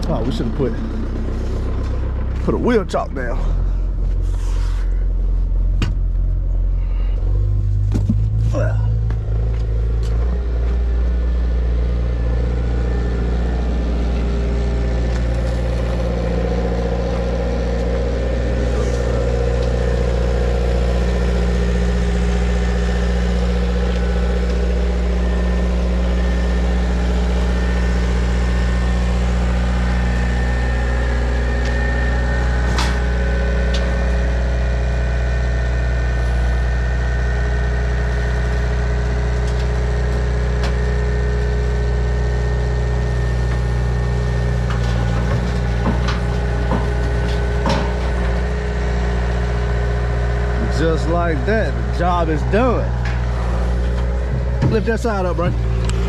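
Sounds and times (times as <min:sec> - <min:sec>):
diesel engine idling: 0:00.0 - 0:56.0
sharp engine knocks: 0:05.7 - 0:06.4, 0:07.8 - 0:10.8, 0:44.6 - 0:48.8, 0:50.6 - 0:56.0.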